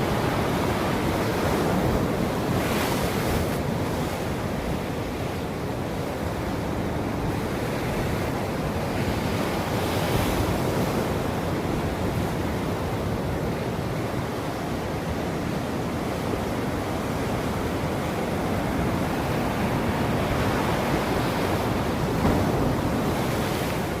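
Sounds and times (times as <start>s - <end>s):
ocean surf washing: 0.0s - 24.0s.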